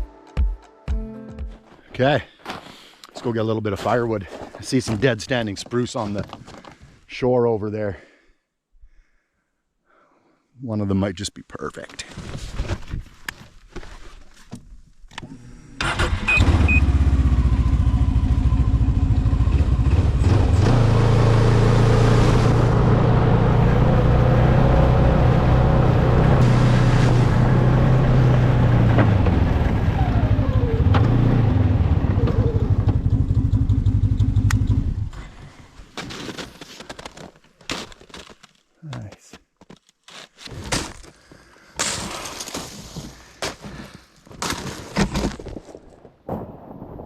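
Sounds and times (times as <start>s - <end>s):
snowmobile engine running: 16.6s - 35.1s.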